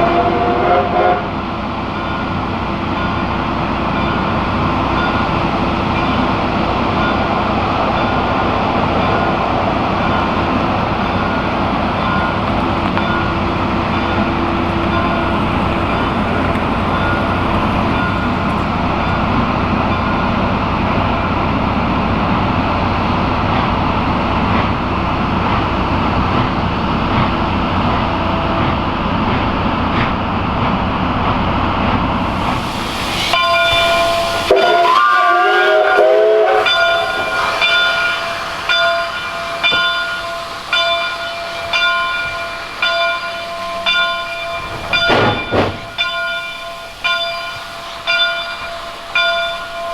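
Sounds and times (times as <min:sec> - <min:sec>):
steam whistle: 0:00.0 - 0:01.5, 0:32.3 - 0:44.1
train rumble and rattle: 0:00.0 - 0:49.9.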